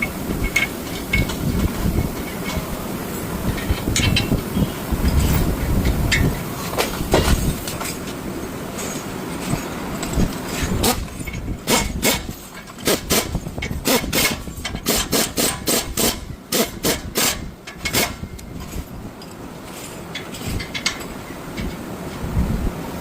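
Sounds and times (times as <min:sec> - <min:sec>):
hand tool scraping on bolts: 0:00.0 - 0:22.2.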